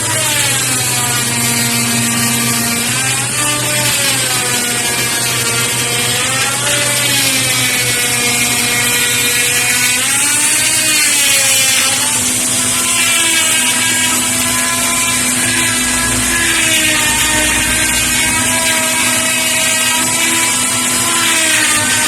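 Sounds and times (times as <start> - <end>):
electric power tool whining: 0.0 - 22.0
steady high hiss: 10.6 - 22.0.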